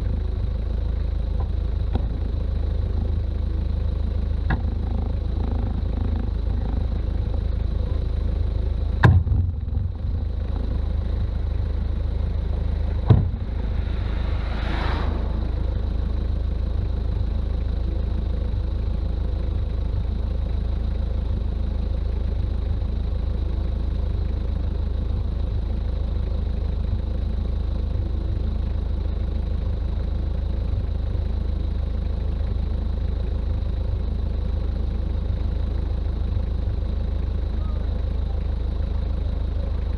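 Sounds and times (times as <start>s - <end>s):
road noise: 0.0s - 22.7s
diesel engine droning: 0.0s - 39.9s
sharp knocks: 13.0s - 13.5s.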